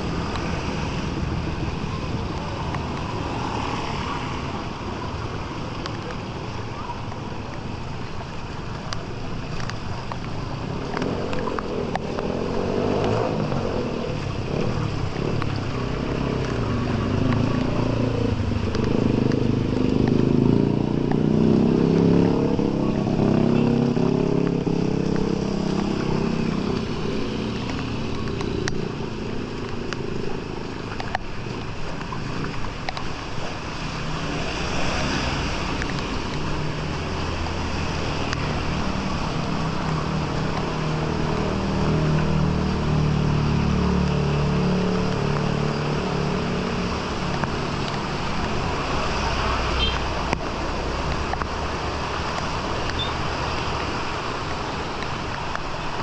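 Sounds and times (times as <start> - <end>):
rushing water: 0.0 - 56.0
vehicle engine passing: 10.8 - 30.0, 33.4 - 55.5.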